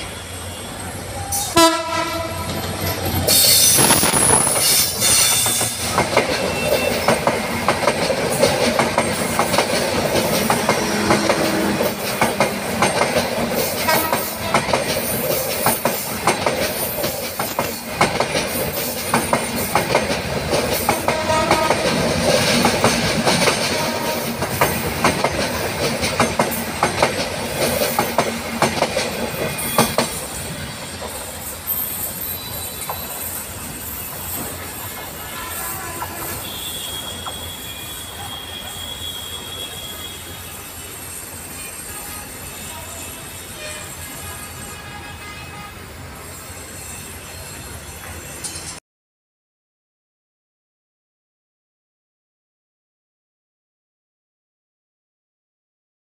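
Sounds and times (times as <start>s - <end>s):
locomotive horn: 0.0s - 2.8s, 10.8s - 12.0s, 13.8s - 14.9s, 21.0s - 22.0s, 23.6s - 24.4s, 35.2s - 40.8s, 41.6s - 45.9s
train passing close by: 0.0s - 48.8s
wheels clacking over rail joints: 1.3s - 31.8s.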